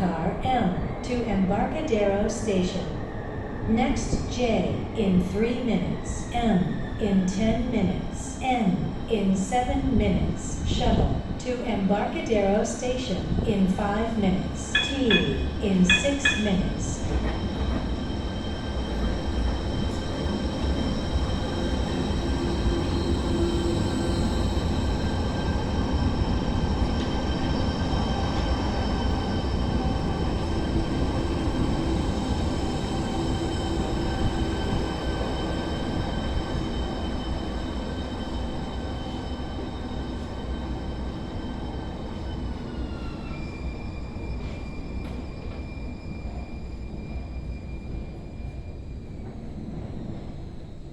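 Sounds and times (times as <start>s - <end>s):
rail rumble: 12.4s - 27.4s
train traction inverters whining: 14.4s - 49.2s.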